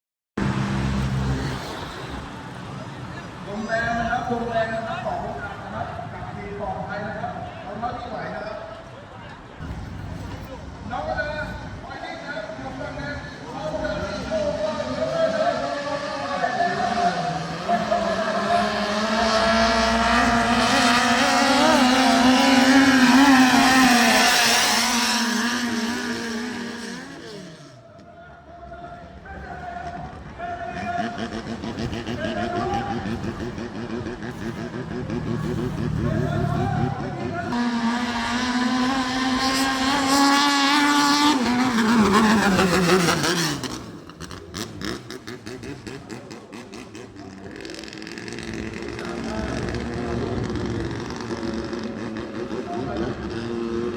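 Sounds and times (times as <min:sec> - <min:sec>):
racing boat engine passing: 0:08.6 - 0:27.9, 0:29.0 - 0:53.9
racing boat engine running hard: 0:31.2 - 0:43.9.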